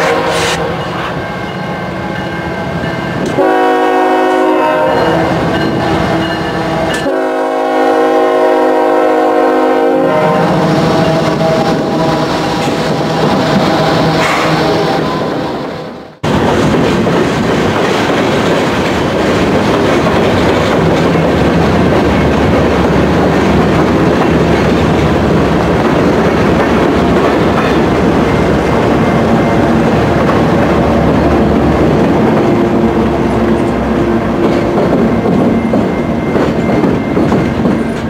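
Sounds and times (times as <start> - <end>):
diesel locomotive engine rumble: 0.0 - 38.0
freight cars rumbling: 10.4 - 38.0
train wheels clattering over rail joints: 16.2 - 32.6, 33.5 - 38.0.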